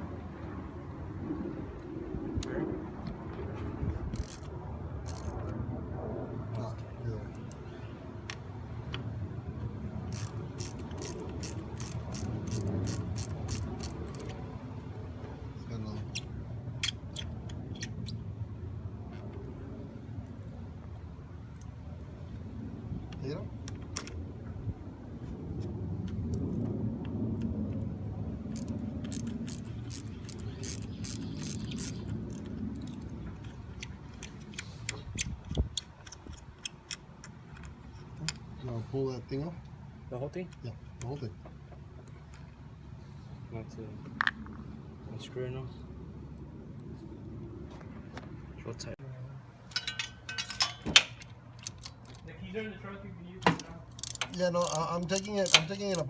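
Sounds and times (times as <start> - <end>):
low vehicle rumble: 0.0 - 40.2
ratchet wrench clicking: 4.1 - 4.5, 10.1 - 14.4, 28.6 - 33.0, 53.9 - 56.0
metallic clicks of hand tools: 28.6 - 38.5, 53.6 - 56.0.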